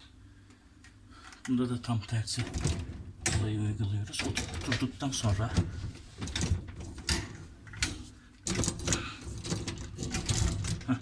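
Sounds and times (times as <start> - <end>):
plastic parts clicking and knocking: 2.4 - 11.0.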